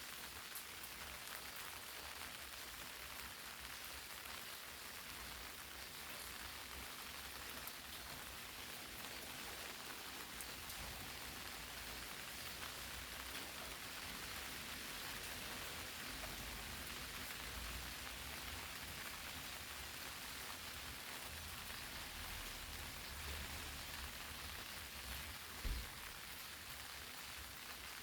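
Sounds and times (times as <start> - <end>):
rain falling on leaves: 0.0 - 28.0.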